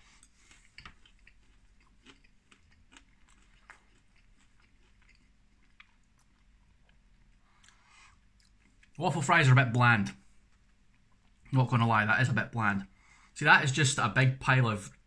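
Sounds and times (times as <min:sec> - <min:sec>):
wet chewing sounds: 0:00.0 - 0:09.0, 0:10.3 - 0:11.6.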